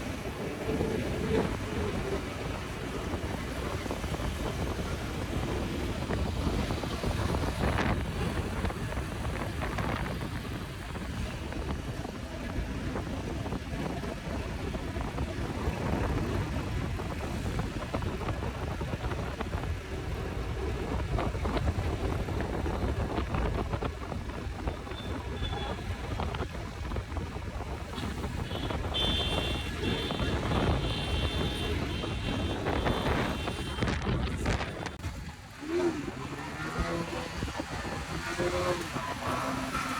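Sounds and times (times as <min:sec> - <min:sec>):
road noise: 0:00.0 - 0:39.9
wind buffeting microphone: 0:00.0 - 0:39.9
motorcycle engine: 0:27.9 - 0:39.9.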